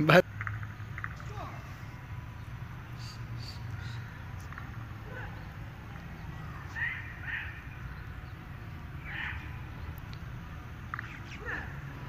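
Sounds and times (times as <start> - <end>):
short bird calls: 2.9 - 8.4.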